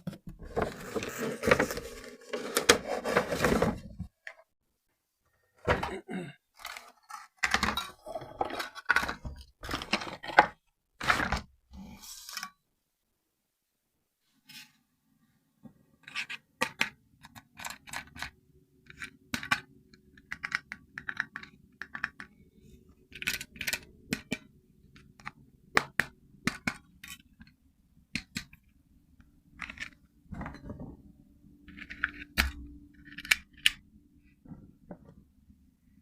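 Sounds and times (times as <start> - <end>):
plastic parts clicking and scraping: 0.0 - 4.5, 6.5 - 11.5, 16.0 - 30.9, 31.6 - 35.2.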